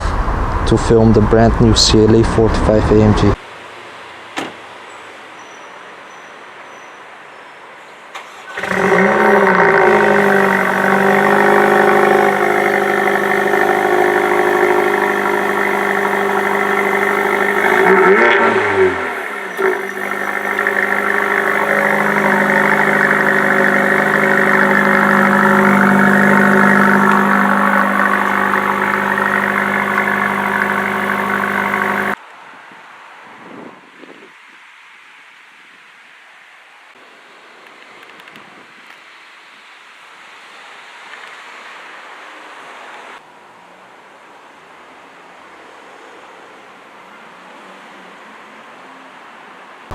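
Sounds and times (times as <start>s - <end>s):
car engine starting and idling: 0.0s - 3.4s, 8.1s - 32.2s.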